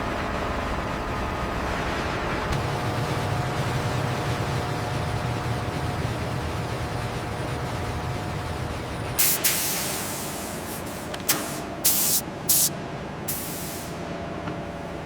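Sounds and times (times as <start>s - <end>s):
pressurised hissing bursts: 9.2s - 12.7s, 13.3s - 14.0s.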